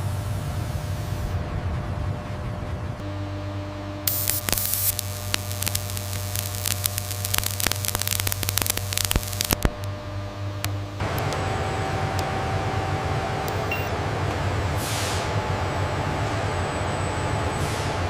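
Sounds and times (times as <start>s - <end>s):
low electrical hum: 0.0s - 14.8s
crackling clicks: 4.1s - 10.0s, 10.6s - 11.5s.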